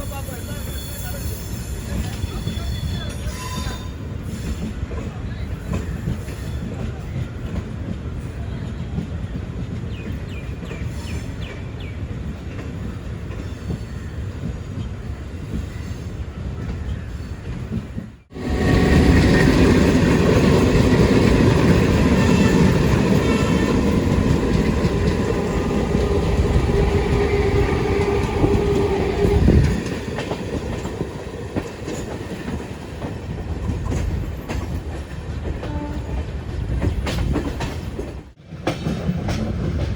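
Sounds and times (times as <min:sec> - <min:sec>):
train wheels clattering on rails: 0:00.0 - 0:39.9.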